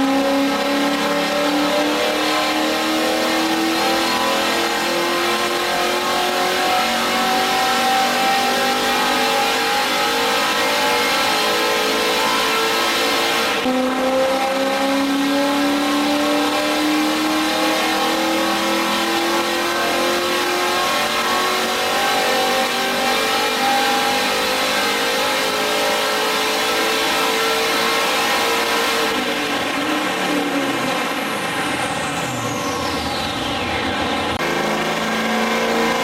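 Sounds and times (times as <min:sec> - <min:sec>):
engine revving under load: 0:00.0 - 0:36.0.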